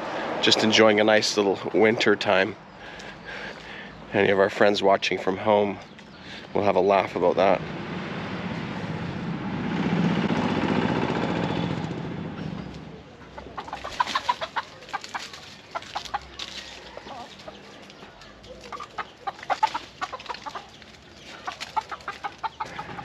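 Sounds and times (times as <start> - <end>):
passing vehicle engine: 0.0 - 4.3, 6.4 - 23.0
chickens clucking: 0.0 - 7.6, 12.4 - 23.0.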